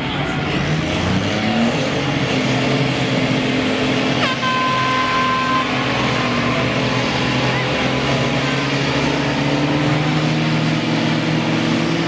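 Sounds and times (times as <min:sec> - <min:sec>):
truck engines revving high: 0:00.0 - 0:12.0
steady horn-like tone: 0:04.2 - 0:09.3.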